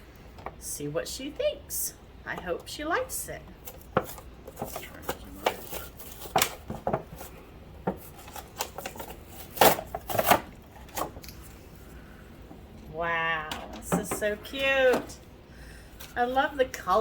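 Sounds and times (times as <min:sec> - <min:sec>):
cardboard and plastic packaging rustling: 0:03.6 - 0:12.6.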